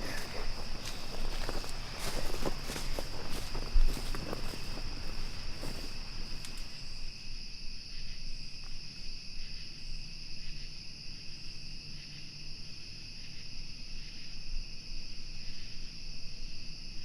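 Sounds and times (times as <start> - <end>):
low outdoor rumble: 0.0 - 7.1
insects trilling: 0.0 - 17.0.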